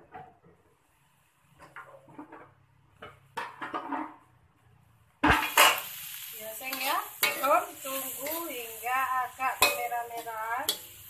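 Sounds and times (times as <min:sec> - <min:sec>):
spatula scraping wok: 0:01.4 - 0:04.4, 0:05.2 - 0:11.0
food sizzling in a wok: 0:05.2 - 0:11.0
metal spatula clinking: 0:06.7 - 0:08.5, 0:09.4 - 0:11.0.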